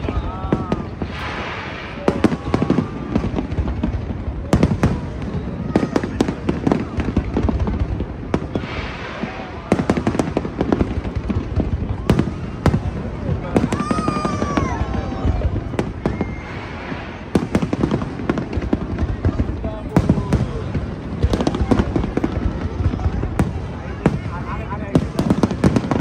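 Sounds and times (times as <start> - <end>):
fireworks shells bursting: 1.0 - 3.8.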